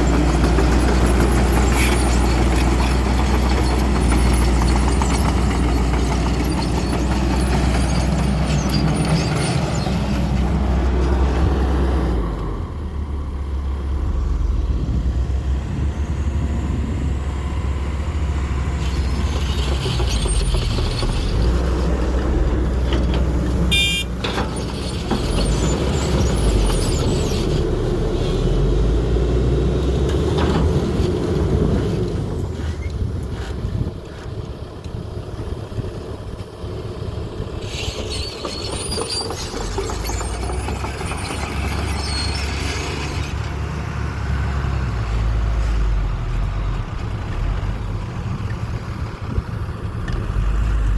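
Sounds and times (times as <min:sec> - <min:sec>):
excavator diesel engine running: 0:00.0 - 0:50.9
brief high-pitched squeal: 0:37.6 - 0:43.3.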